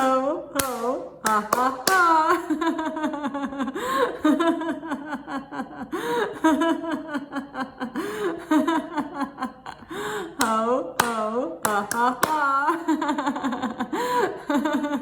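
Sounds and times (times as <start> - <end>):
woman laughing: 2.1 - 10.0, 12.1 - 15.0.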